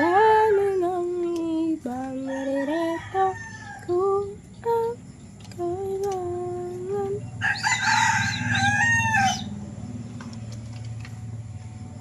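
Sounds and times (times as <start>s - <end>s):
rooster crowing: 2.0s - 4.3s, 7.3s - 9.6s.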